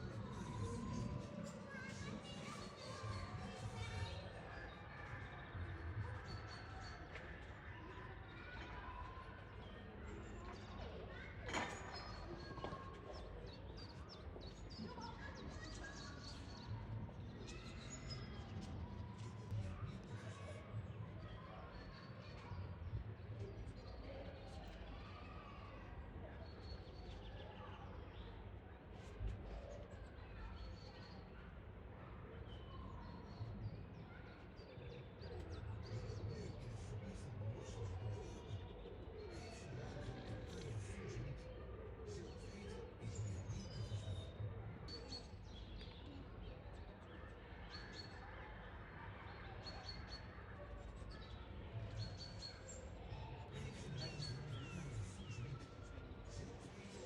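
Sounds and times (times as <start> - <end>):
low background murmur: 0.0 - 57.0.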